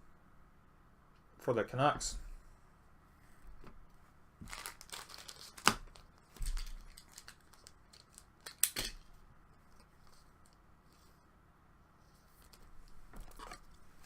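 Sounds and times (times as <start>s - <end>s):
foil wrappers crinkling and tearing: 4.4s - 8.8s.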